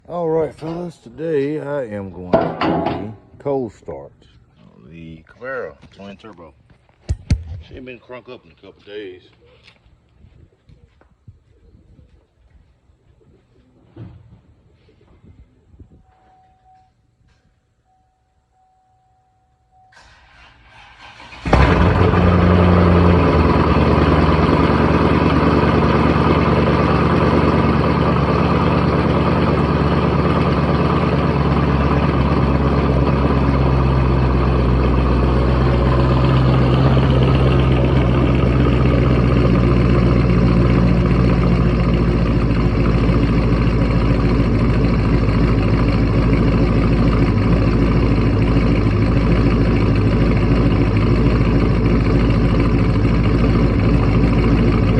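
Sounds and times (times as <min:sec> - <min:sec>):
car engine cranking: 0:20.0 - 0:54.9
car engine idling loudly: 0:21.0 - 0:54.9.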